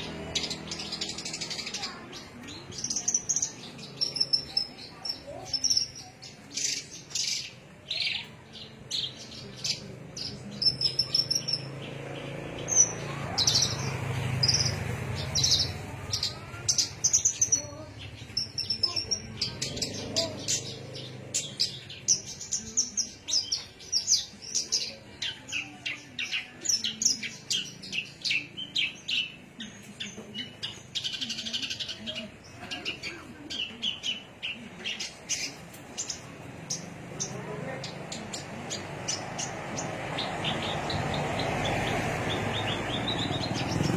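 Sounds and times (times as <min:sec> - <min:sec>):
songbird chirps and trills: 0:00.0 - 0:43.9.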